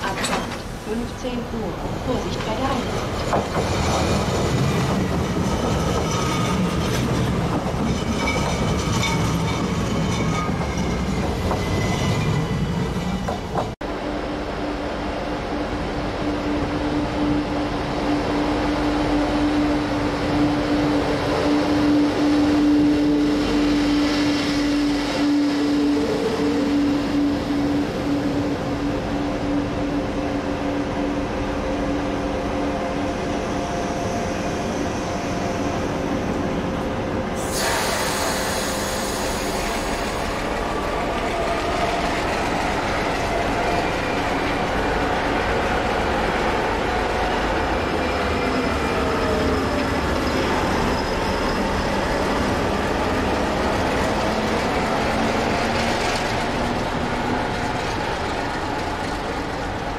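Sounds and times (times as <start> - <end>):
diesel locomotive engine drone: 0.0 - 59.9
train pulling out: 0.0 - 59.9
loud hiss: 37.4 - 40.4.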